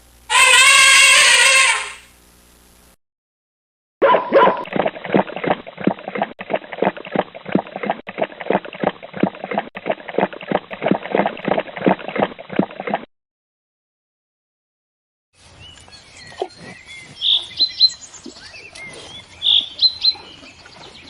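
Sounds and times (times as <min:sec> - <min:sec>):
dog barking rapidly: 0:04.0 - 0:04.7.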